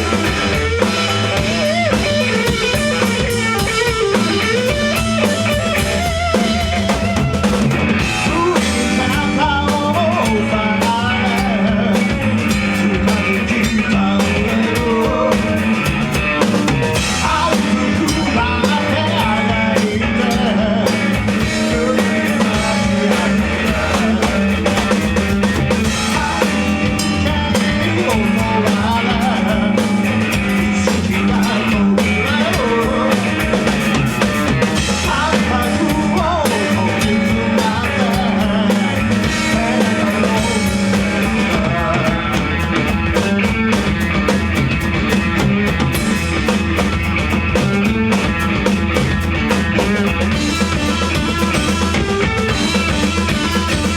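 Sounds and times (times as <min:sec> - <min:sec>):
drum kit: 0:00.0 - 0:53.9
rock band playing live: 0:00.0 - 0:53.9.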